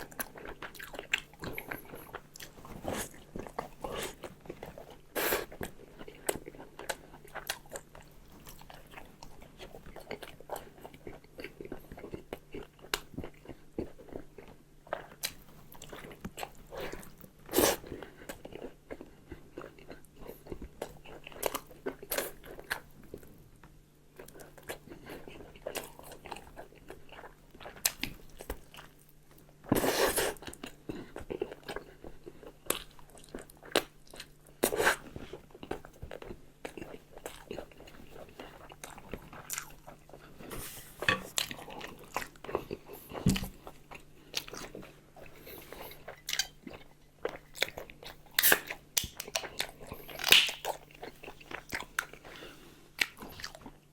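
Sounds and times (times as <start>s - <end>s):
person chewing food: 0.0s - 23.4s, 24.1s - 53.9s
sharp eating sound: 48.4s - 50.8s.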